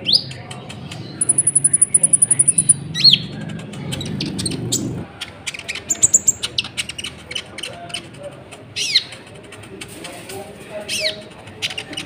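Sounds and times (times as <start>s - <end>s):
bird chirping: 0.0s - 9.5s.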